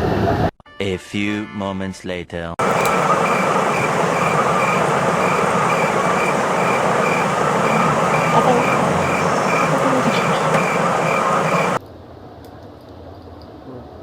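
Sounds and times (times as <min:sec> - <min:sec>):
moving train: 0:02.6 - 0:11.8.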